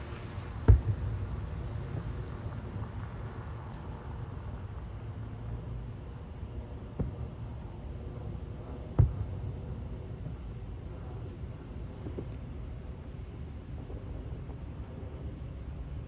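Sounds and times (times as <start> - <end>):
high insect song: 5.0 - 14.6.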